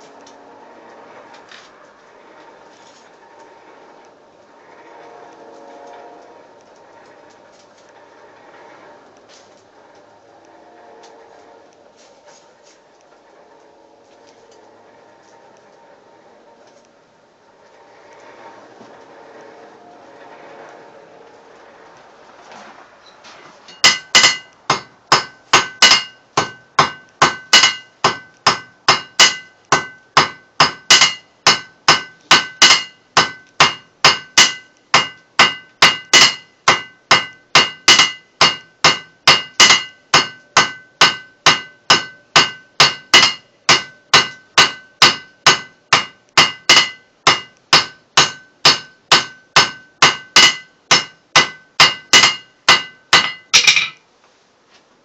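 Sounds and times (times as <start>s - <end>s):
hammer ringing on anvil: 23.7s - 54.0s.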